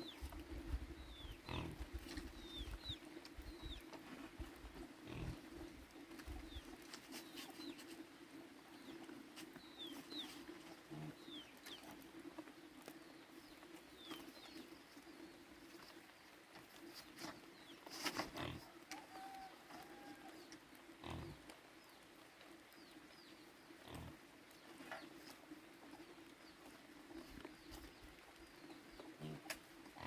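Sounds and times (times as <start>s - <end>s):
small birds chirping: 0.0s - 30.0s
pigs grunting: 1.4s - 2.0s, 5.0s - 5.7s, 18.3s - 18.7s, 29.0s - 30.0s.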